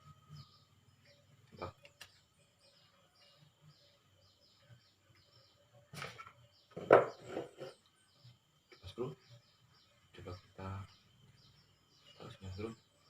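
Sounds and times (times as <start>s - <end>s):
faint steady high tone: 0.0s - 5.8s
small birds chirping: 0.0s - 13.0s.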